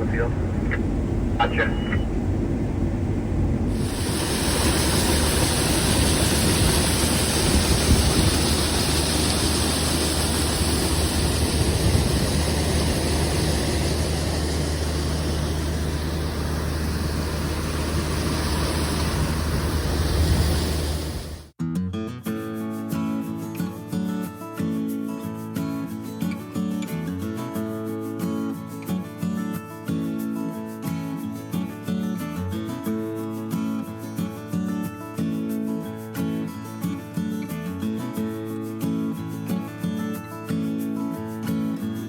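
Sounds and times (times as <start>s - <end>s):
broad rushing noise: 0.0s - 21.5s
heavy machinery engine running: 0.0s - 21.5s.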